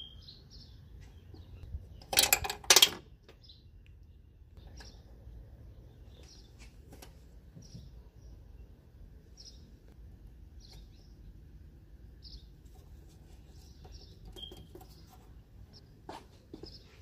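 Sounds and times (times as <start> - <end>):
small bird chirping: 0.0 - 2.1, 3.1 - 6.7, 7.5 - 11.4, 12.2 - 15.9.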